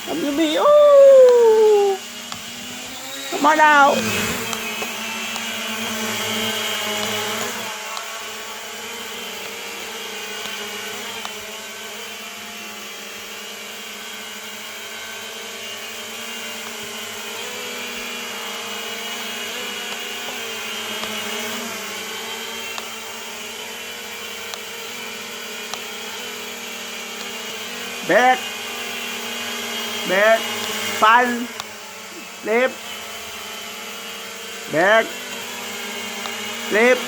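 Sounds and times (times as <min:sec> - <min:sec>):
quadcopter propellers whirring: 0:00.0 - 0:37.0.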